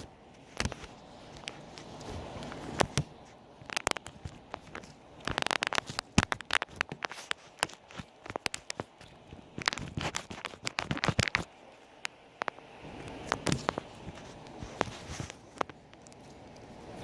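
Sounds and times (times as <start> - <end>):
slime squished by hand: 0.6 - 11.5.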